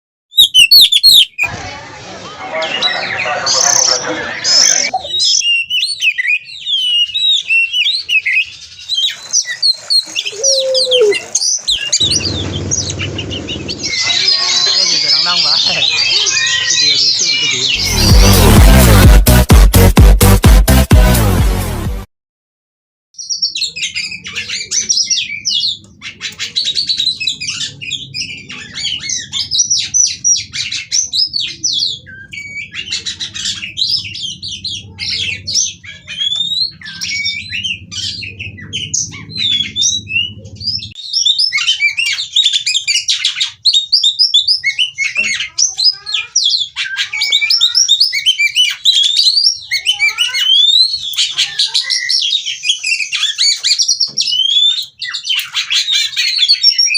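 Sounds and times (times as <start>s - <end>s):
bird singing varied whistles: 0.3s - 1.5s, 5.1s - 12.5s, 52.0s - 54.9s.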